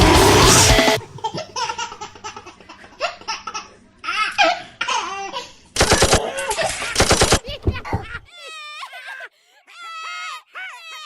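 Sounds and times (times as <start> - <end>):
person laughing: 6.0 - 9.3.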